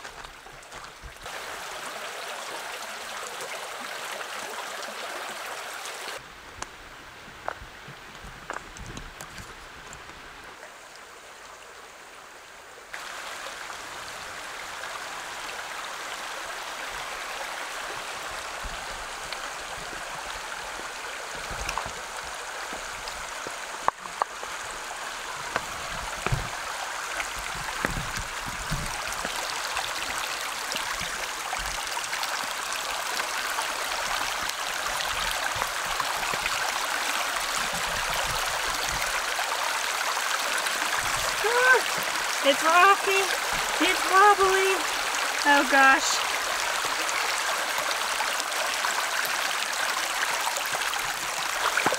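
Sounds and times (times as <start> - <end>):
water running over rocks: 0.0 - 51.9.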